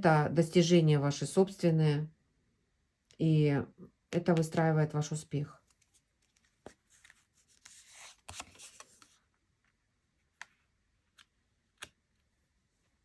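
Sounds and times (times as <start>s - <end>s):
cards rustling as they slide: 5.7s - 9.2s.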